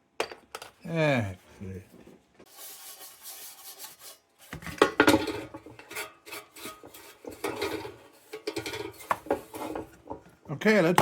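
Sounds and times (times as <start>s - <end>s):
metal tools scraping and clattering: 4.8s - 10.2s.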